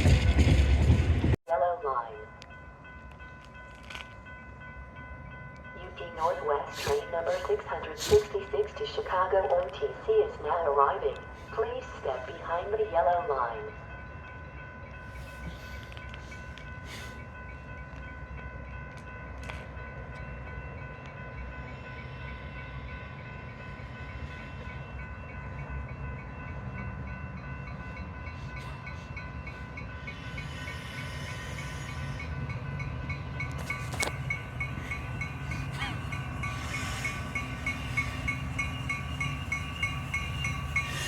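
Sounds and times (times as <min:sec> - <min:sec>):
train rumbling: 0:00.0 - 0:41.0
steady high tones: 0:28.8 - 0:41.0.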